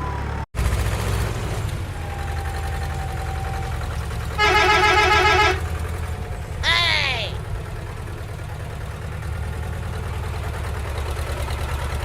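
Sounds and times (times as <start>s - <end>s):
vehicle engine idling: 0.0s - 12.0s
vehicle horn: 4.3s - 5.8s.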